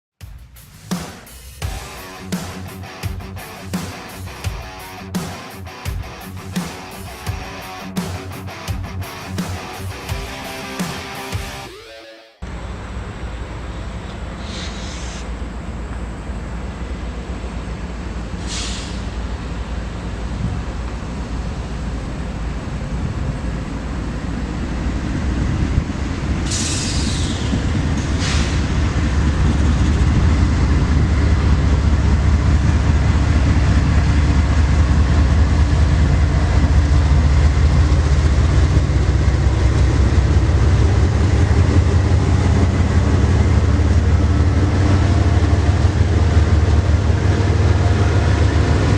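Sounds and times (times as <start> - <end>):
freight train passing: 0.7 - 11.7, 12.4 - 48.9
brief high-pitched noises: 10.8 - 12.4.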